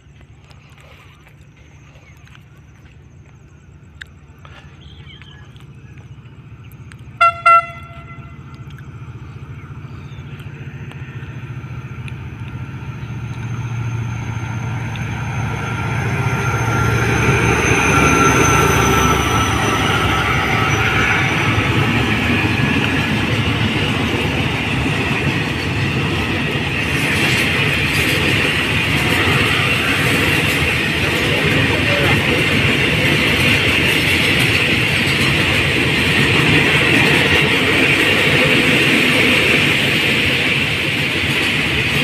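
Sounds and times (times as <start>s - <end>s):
locomotive engine passing: 0.0s - 42.0s
train wagons rolling by: 0.0s - 42.0s
diesel locomotive horn blasts: 7.2s - 8.7s.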